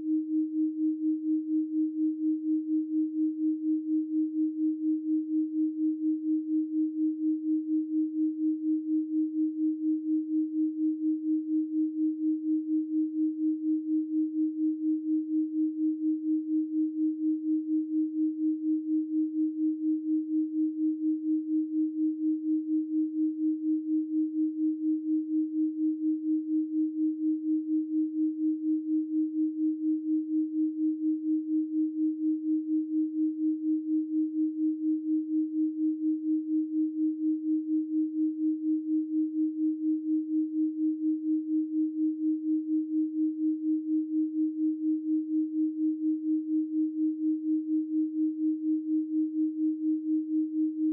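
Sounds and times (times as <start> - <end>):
pulsing sine tone: 0.0 - 50.9.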